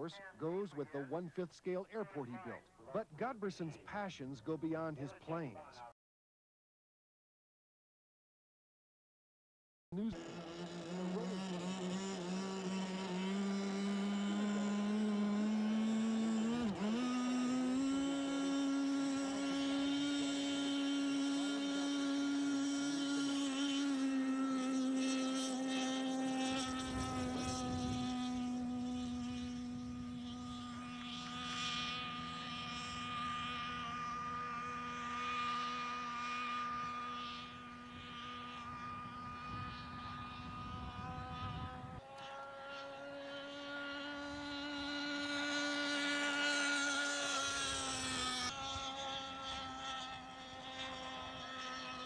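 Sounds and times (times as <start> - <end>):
model airplane engine buzzing: 10.0 - 52.0.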